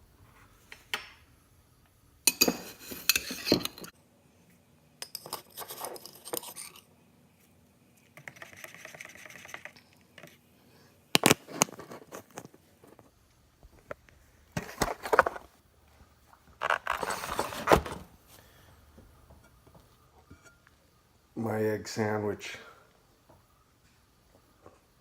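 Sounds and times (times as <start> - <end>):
dishes and cutlery clinking: 2.3 - 3.9, 5.0 - 6.8.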